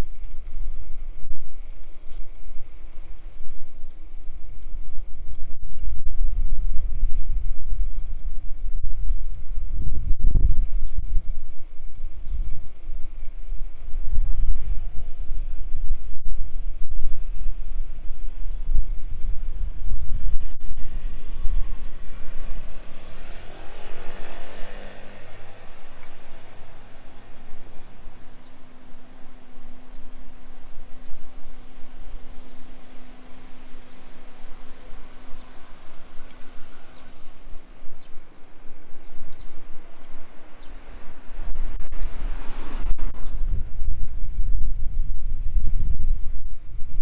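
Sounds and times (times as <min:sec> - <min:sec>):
wind rumble on microphone: 0:00.0 - 0:47.0
vehicle passing by: 0:20.4 - 0:44.2
hiss: 0:20.5 - 0:43.8.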